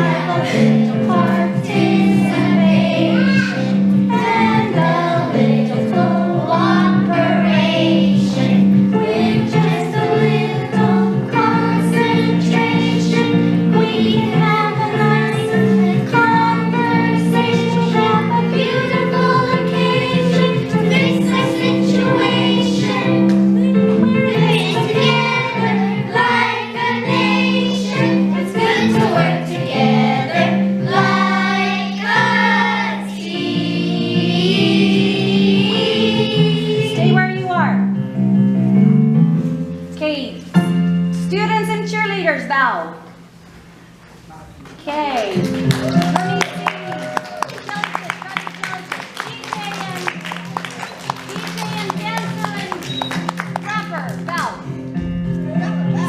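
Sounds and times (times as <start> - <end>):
children singing together: 0.0 - 37.0
instrumental accompaniment: 0.0 - 42.1, 45.3 - 56.0.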